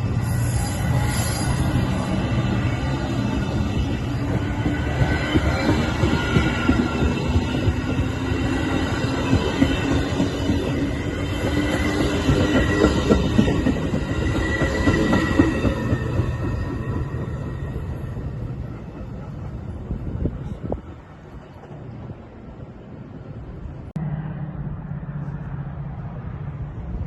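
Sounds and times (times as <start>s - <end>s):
train passing on tracks: 0.0s - 27.0s
wheel squeal: 0.1s - 18.3s.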